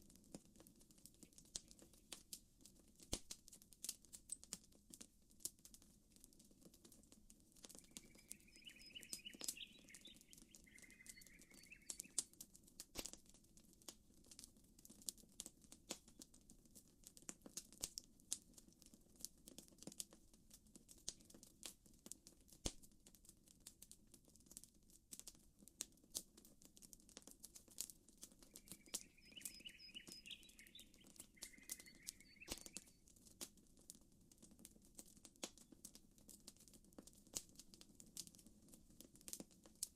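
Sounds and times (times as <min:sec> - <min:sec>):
campfire crackling and popping: 0:00.0 - 0:39.9
short chirping call: 0:07.9 - 0:12.2, 0:28.5 - 0:33.0.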